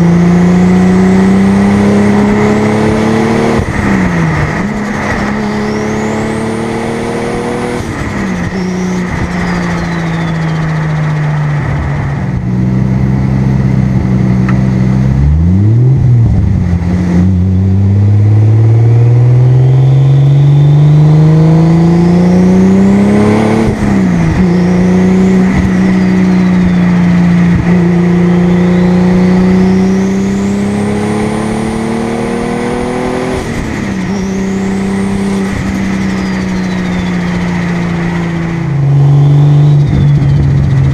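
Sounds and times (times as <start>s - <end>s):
car engine accelerating: 0.0s - 40.9s
turbo whistle: 8.3s - 11.3s, 36.0s - 37.6s, 38.9s - 40.9s.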